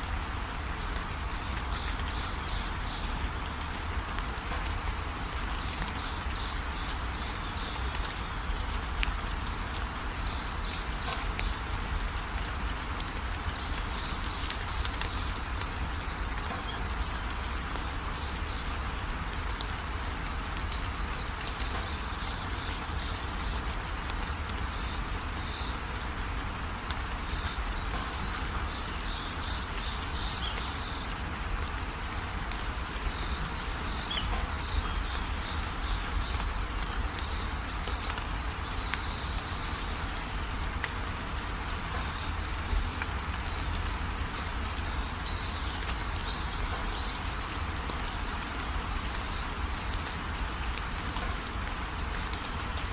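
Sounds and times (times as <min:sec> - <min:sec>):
songbirds chirping: 0:00.0 - 0:52.9
steady rain: 0:00.0 - 0:52.9.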